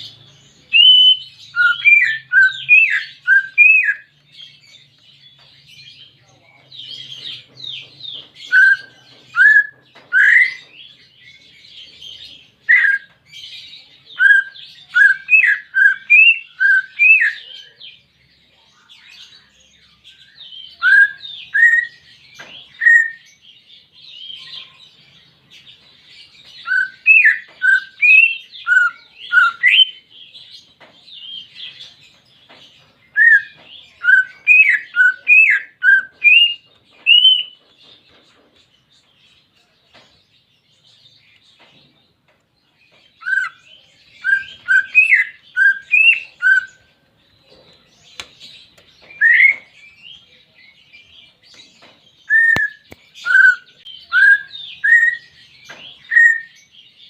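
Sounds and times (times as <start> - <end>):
bird singing whistled notes: 0.0 - 4.7, 8.0 - 11.2, 12.6 - 13.2, 14.1 - 17.5, 20.1 - 23.5, 26.5 - 30.1, 33.1 - 37.6, 43.2 - 46.9, 48.9 - 50.3, 52.2 - 57.0.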